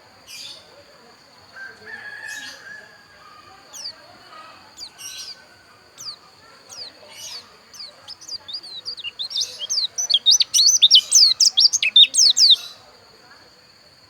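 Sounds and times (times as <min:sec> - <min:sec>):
bird chirping and twittering: 0:03.4 - 0:12.8.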